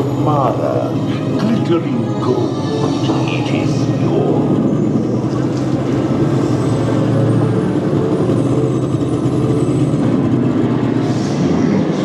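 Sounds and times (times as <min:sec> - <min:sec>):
ride vehicle rumbling on track: 0:00.0 - 0:12.0.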